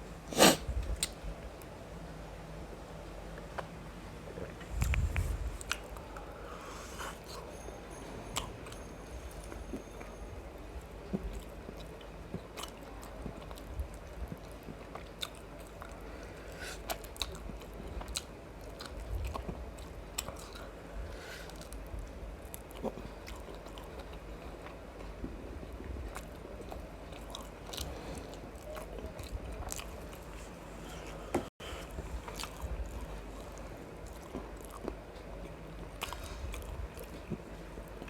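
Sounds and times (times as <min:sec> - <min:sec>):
person chewing food: 0:04.2 - 0:07.5, 0:11.0 - 0:38.0.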